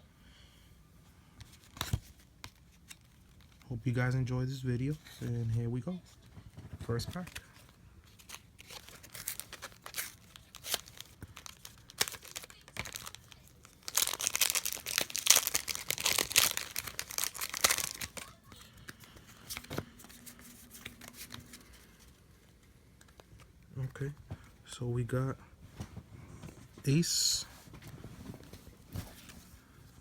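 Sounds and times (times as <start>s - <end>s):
foil pack tearing and crinkling: 8.2s - 18.6s.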